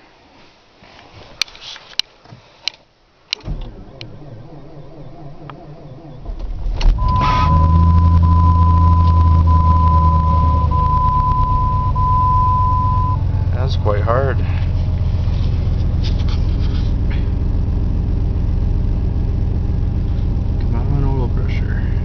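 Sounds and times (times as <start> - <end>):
clicks: 6.8 - 9.9.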